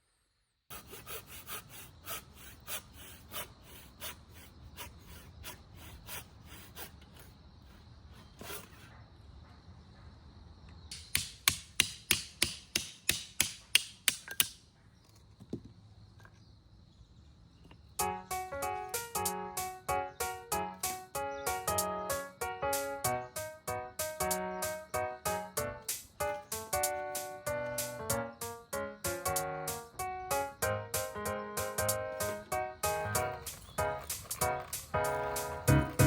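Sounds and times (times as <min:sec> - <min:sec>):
hand tool strokes on wood: 0:00.7 - 0:09.0, 0:32.2 - 0:36.0
music: 0:18.0 - 0:36.0.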